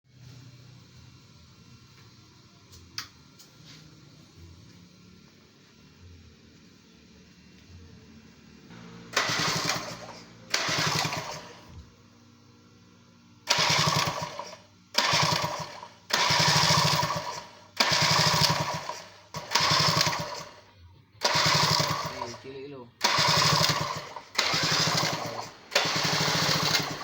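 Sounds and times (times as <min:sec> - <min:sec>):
two-stroke engine throttle blips: 0:09.1 - 0:11.8, 0:13.5 - 0:20.6, 0:21.2 - 0:27.0.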